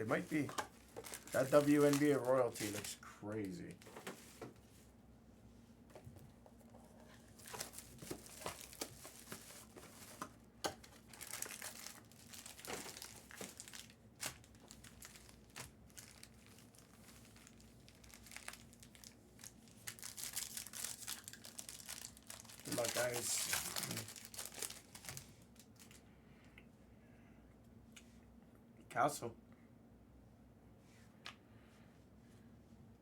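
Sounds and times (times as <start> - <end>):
plastic and foil packaging crinkling: 0.0 - 4.4, 7.0 - 26.0.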